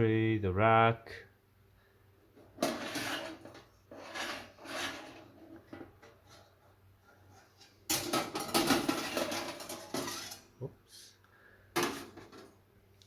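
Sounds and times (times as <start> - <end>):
metal oven rack scraping: 2.6 - 10.5.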